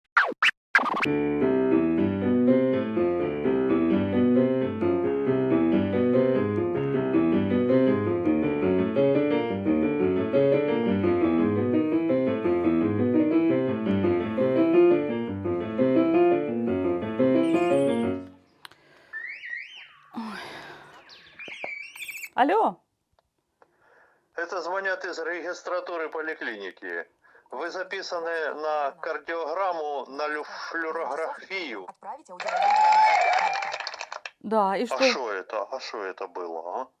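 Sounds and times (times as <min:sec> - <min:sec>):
piano music: 0:01.1 - 0:18.6.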